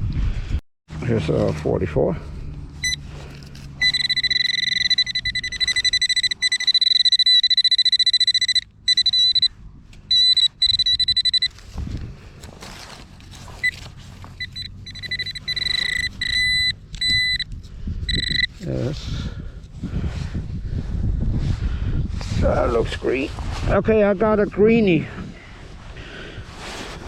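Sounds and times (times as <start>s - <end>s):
pinpointer high-pitched pulsing tone: 2.8s - 11.6s, 13.6s - 18.7s.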